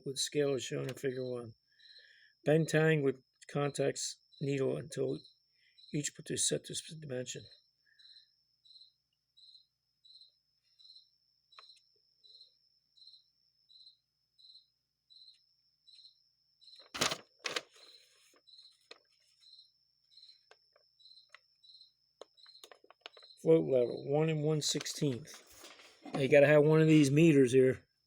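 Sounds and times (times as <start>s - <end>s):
cricket chirping: 0.0s - 28.0s.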